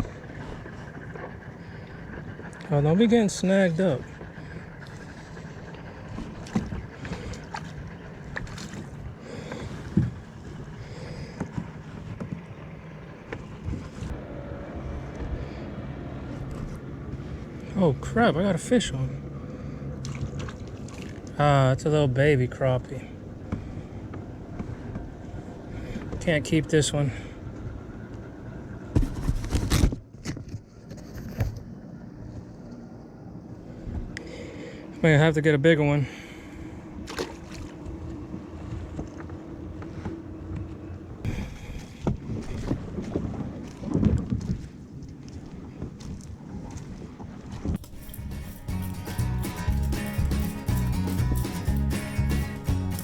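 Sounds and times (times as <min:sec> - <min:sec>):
scrapes and knocks in a kayak: 0:11.2 - 0:12.6, 0:28.9 - 0:32.6
wind on microphone: 0:41.3 - 0:48.0.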